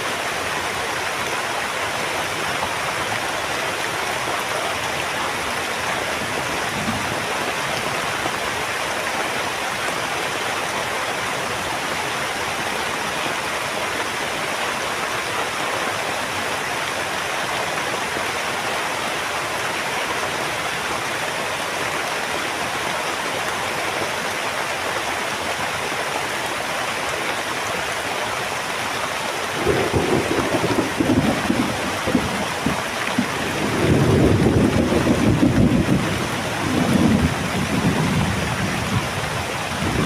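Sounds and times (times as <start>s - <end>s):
heavy rain: 0.0s - 40.0s
low rumble of thunder: 29.6s - 40.0s.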